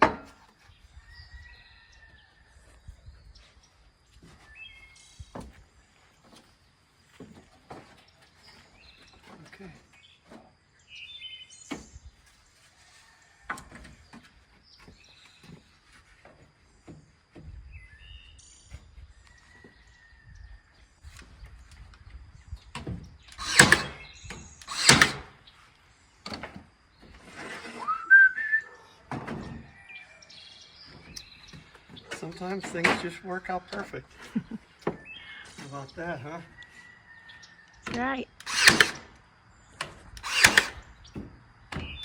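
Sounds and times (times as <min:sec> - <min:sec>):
nail gun firing: 0:23.3 - 0:25.4, 0:38.4 - 0:39.2, 0:40.2 - 0:40.9.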